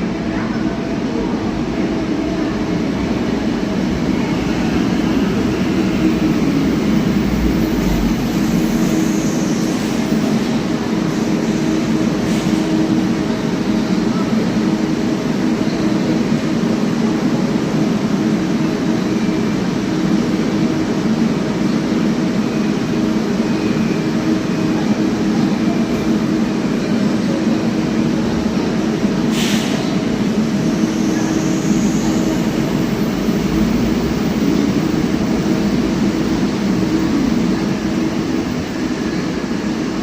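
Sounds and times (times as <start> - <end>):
brief air hiss: 29.3 - 30.0.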